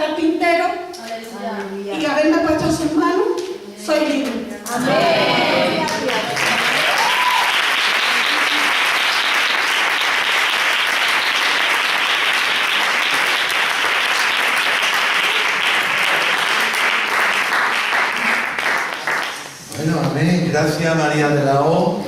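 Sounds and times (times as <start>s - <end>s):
audience applauding: 4.9s - 19.6s.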